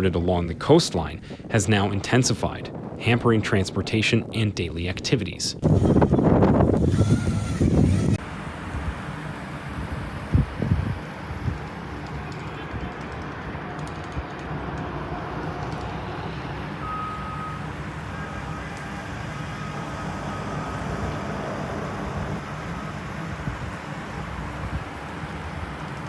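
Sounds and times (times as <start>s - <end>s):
low rumble of vehicle traffic: 5.7s - 26.0s
high steady tone: 14.4s - 24.6s.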